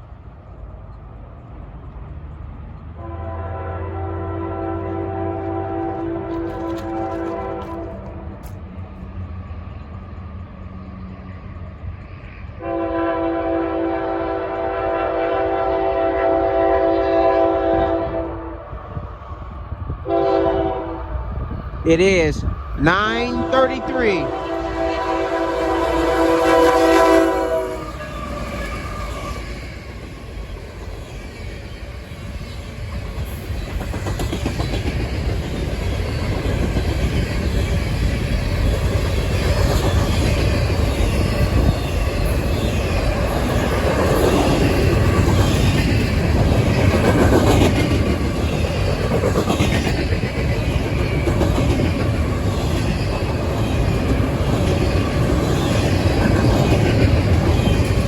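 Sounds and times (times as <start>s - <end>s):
clickety-clack of train cars: 0.0s - 18.3s, 22.6s - 58.0s
train wheels rumbling on rails: 0.0s - 58.0s
locomotive air horn chord: 3.0s - 8.4s, 12.6s - 18.6s, 20.1s - 21.1s, 23.3s - 28.0s.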